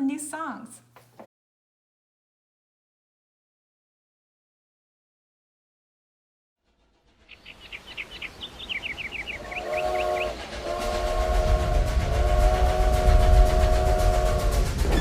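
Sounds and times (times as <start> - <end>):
rolling train wheels clatter: 6.7 - 15.0
train whistle: 8.1 - 15.0.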